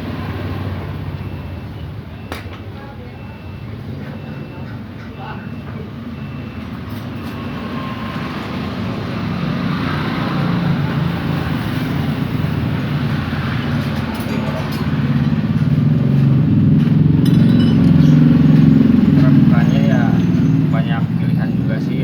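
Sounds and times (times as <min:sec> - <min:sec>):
vehicle engine running: 0:11.2 - 0:22.0.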